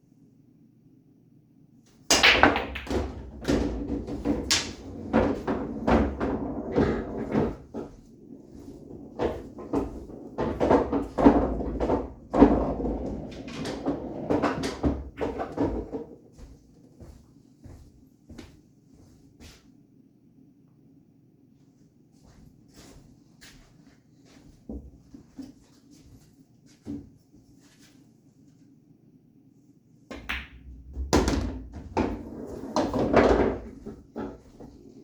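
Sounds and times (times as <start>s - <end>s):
pool balls clacking: 2.1s - 16.2s, 30.1s - 35.0s
pool balls rolling rumble: 2.1s - 16.5s, 30.1s - 35.0s.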